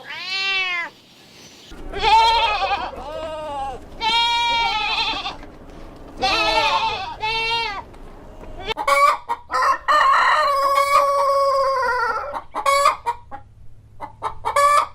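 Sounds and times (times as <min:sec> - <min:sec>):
goat bleating: 0:01.7 - 0:08.8
rooster clucking and crowing: 0:08.5 - 0:14.9.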